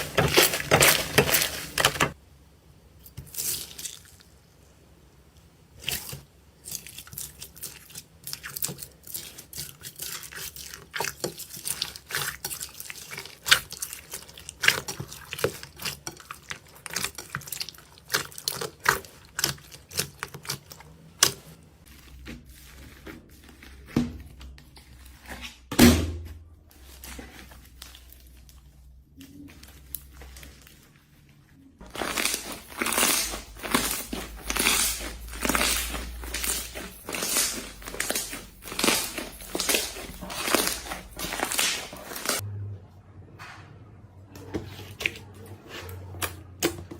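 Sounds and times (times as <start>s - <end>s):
slime squished by hand: 31.8s - 42.4s.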